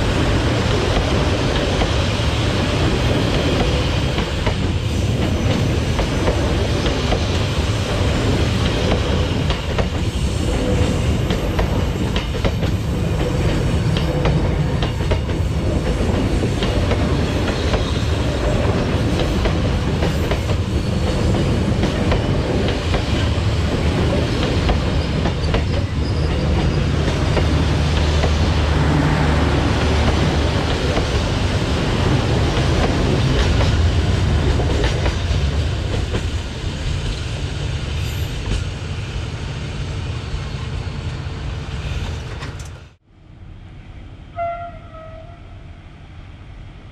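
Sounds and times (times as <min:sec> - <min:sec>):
train wheels clicking over rail joints: 0:08.6 - 0:28.6.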